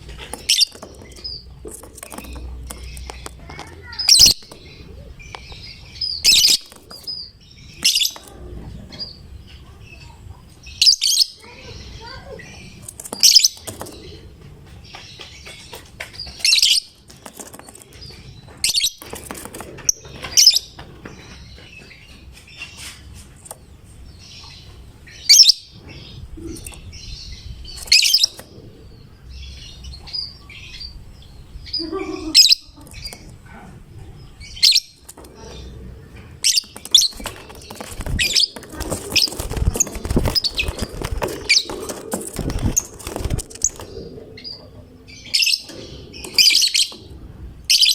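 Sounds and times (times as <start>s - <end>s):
lovebird chirping: 0.0s - 15.4s, 24.0s - 47.9s
rustling: 35.0s - 47.2s.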